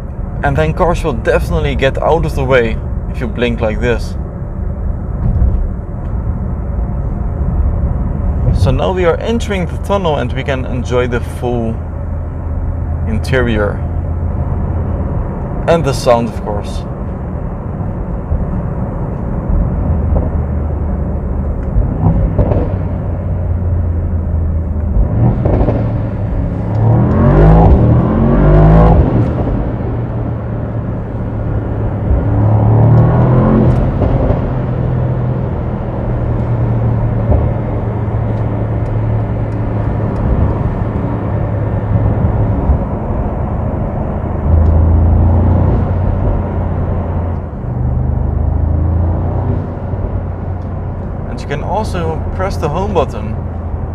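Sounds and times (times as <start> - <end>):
exhaust cracks: 5.1 - 53.9
car engine revving in tunnel: 16.8 - 53.9.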